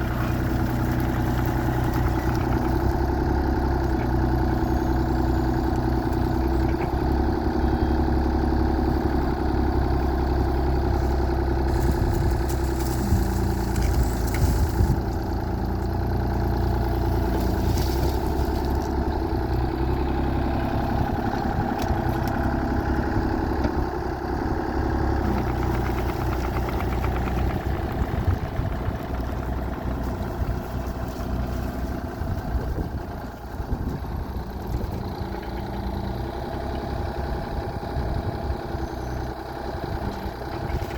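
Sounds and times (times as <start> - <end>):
excavator diesel engine running: 0.0 - 40.9
rattle: 11.0 - 19.1, 25.2 - 32.9.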